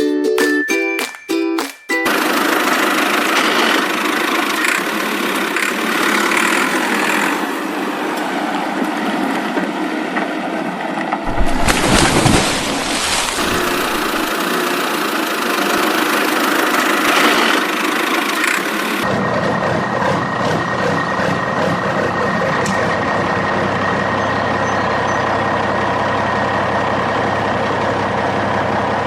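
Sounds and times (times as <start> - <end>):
vehicle engine running: 2.0 - 9.8, 11.3 - 29.0
deep rumble: 11.3 - 14.3.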